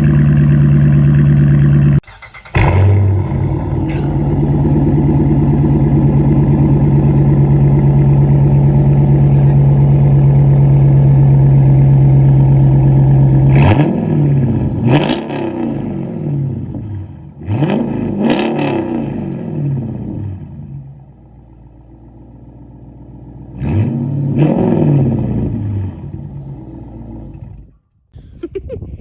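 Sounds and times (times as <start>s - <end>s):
engine revving blips: 0.0s - 20.5s, 23.6s - 26.5s
car engine starting and idling: 0.0s - 28.0s.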